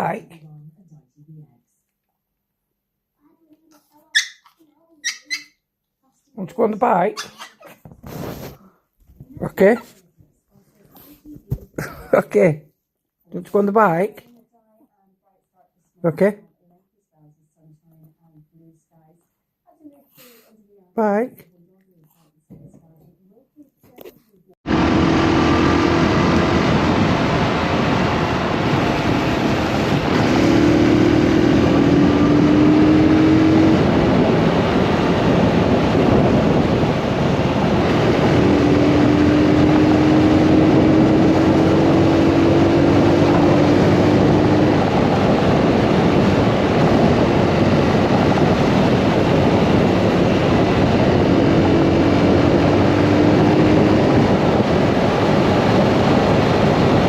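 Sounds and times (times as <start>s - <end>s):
motorcycle engine accelerating: 24.6s - 57.0s
wind noise on microphone: 24.9s - 57.0s.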